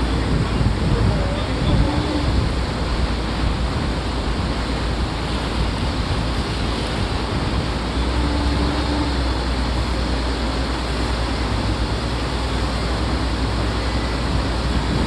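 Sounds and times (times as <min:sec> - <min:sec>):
boat engine rumble: 0:00.0 - 0:15.0
water rushing: 0:00.0 - 0:15.0
wind: 0:00.0 - 0:15.0.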